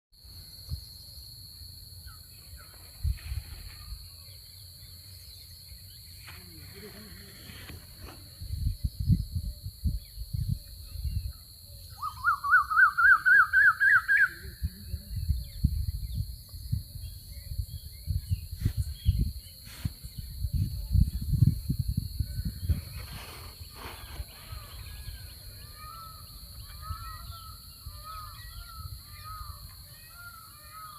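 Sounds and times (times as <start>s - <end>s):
wind buffeting microphone: 7.5s - 11.5s, 14.5s - 29.7s
bird chirping calls: 22.3s - 30.9s
bird warbling trill: 22.9s - 30.9s.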